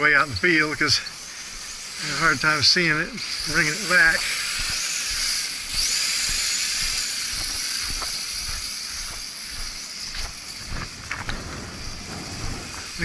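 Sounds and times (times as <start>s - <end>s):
quadcopter motors whining: 0.0s - 13.0s
wind buffeting microphone: 10.6s - 13.0s.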